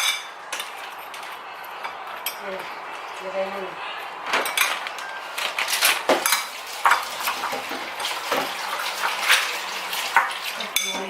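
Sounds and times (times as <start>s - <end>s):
cutlery clinking on a plate: 0.0s - 2.4s, 4.3s - 8.5s, 10.1s - 11.0s.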